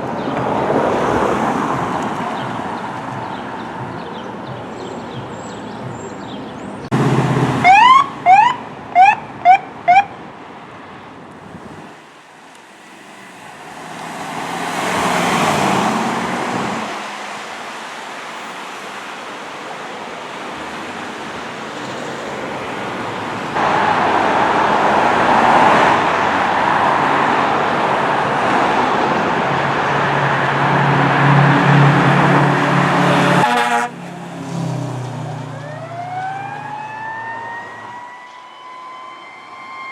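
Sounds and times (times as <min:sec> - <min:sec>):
traffic passing: 0:00.0 - 0:39.9
siren chirps: 0:07.6 - 0:10.2, 0:35.5 - 0:39.9
siren wailing: 0:07.6 - 0:10.2, 0:35.4 - 0:39.9.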